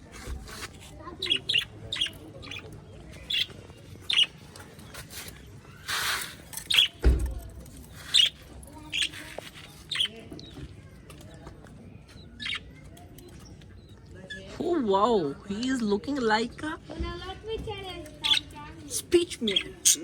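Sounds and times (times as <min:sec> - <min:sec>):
parrots chirping and squawking: 0:01.1 - 0:07.0, 0:07.9 - 0:10.5, 0:12.2 - 0:12.8, 0:18.1 - 0:20.0.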